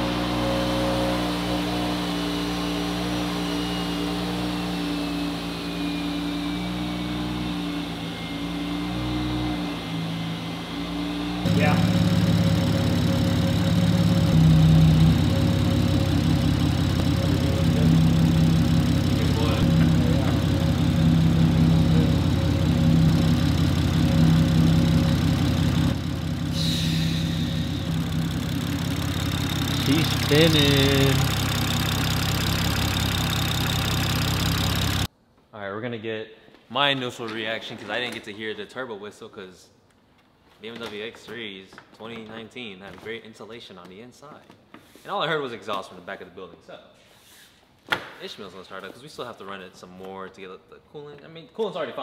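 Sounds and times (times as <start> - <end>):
high turbo whistle: 0.0 - 35.1
car engine idling: 6.7 - 35.1.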